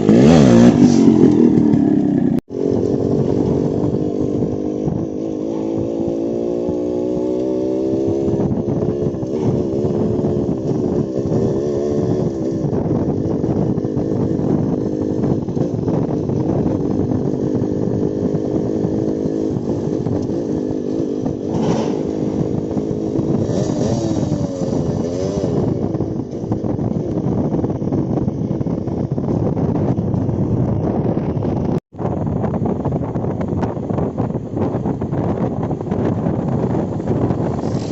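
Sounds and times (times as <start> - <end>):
two-stroke motorcycle engine: 0.0 - 37.9.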